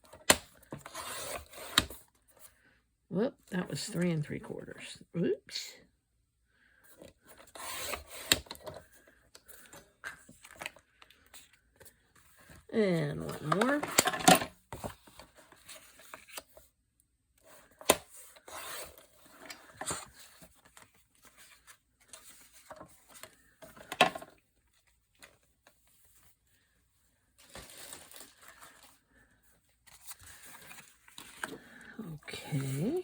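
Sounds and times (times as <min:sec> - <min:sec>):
paper rustling and sliding: 0:27.4 - 0:29.2, 0:29.8 - 0:31.8.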